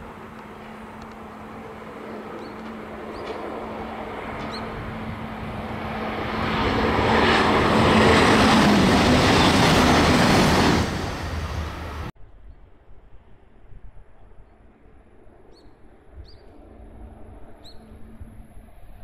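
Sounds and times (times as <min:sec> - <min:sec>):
train rushing past: 0:00.0 - 0:12.1.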